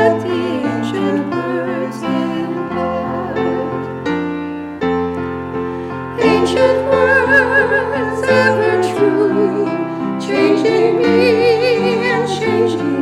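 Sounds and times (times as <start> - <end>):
person singing with vibrato: 0.0 - 4.1, 6.2 - 13.0
piano chords: 0.0 - 13.0.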